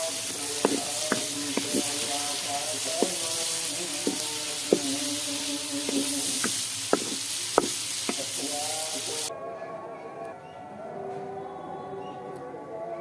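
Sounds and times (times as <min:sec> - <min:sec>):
curry sizzling in a pot: 0:00.0 - 0:09.3
background music: 0:00.0 - 0:13.0.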